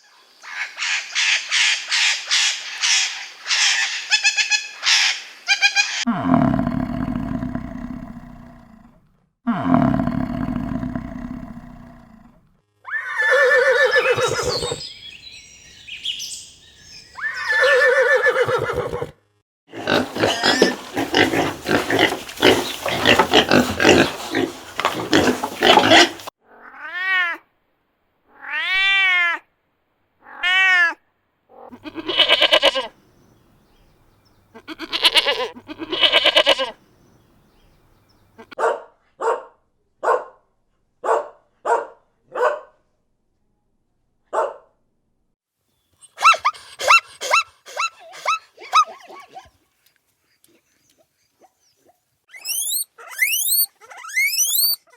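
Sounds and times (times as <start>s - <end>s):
animal calls rising and falling: 12.9s - 15.2s, 17.2s - 19.1s, 19.8s - 26.3s, 31.8s - 32.9s, 52.3s - 54.9s
rapid noisy animal calling: 13.0s - 15.2s, 19.7s - 26.3s, 31.8s - 32.9s, 34.6s - 36.8s, 52.4s - 54.9s.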